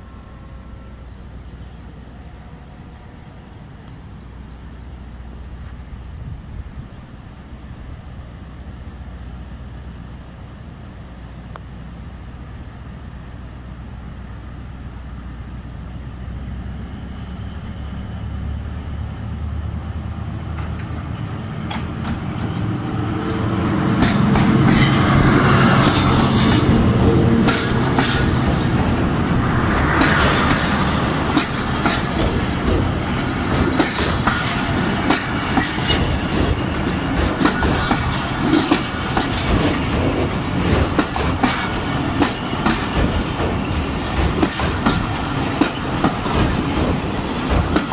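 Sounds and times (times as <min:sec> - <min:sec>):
diesel locomotive engine passing: 0:00.0 - 0:47.9
train wheels clacking over rail joints: 0:20.5 - 0:22.9, 0:23.7 - 0:47.9.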